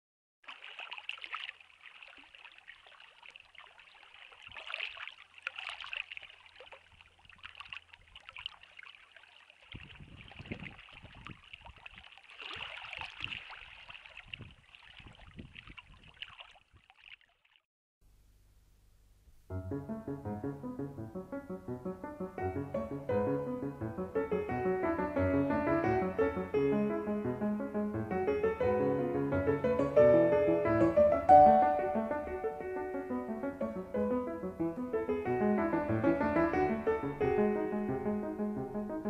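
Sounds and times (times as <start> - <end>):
water trickling and splashing: 0.4 - 17.7.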